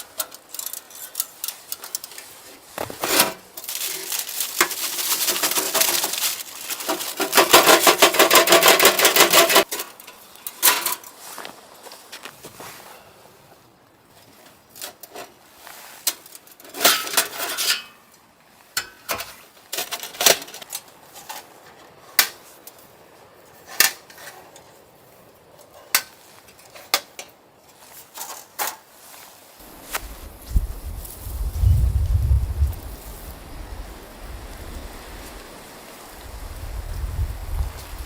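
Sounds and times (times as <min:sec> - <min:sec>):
wind rumble on microphone: 0:29.6 - 0:38.0.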